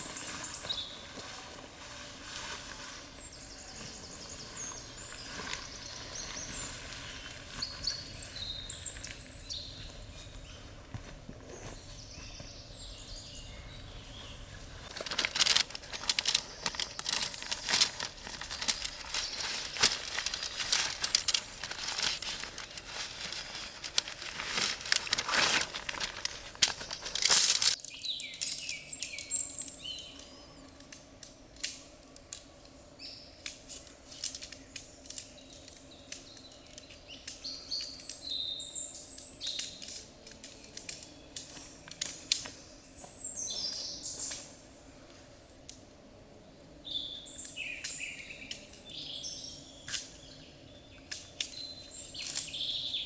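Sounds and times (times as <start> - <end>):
birds chirping: 2.9 - 30.8
crinkling handling noise: 14.2 - 29.4.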